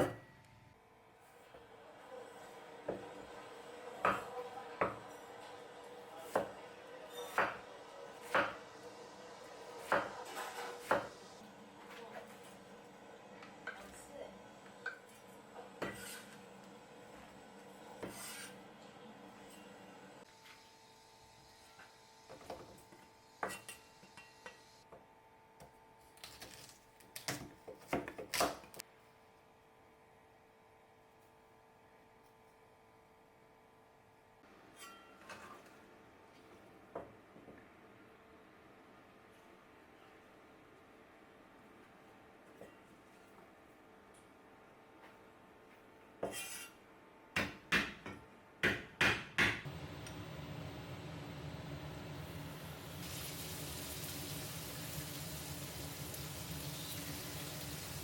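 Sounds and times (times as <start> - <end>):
knife chopping on cutting board: 6.3 - 6.6, 8.2 - 8.6.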